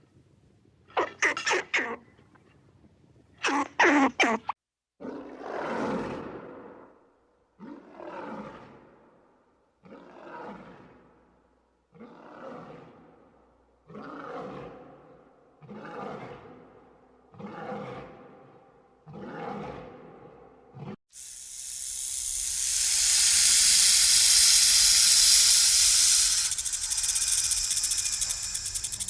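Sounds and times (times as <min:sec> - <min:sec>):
lion roaring: 0:05.0 - 0:06.8, 0:07.6 - 0:09.0, 0:09.8 - 0:11.1, 0:11.9 - 0:13.2, 0:13.9 - 0:21.0.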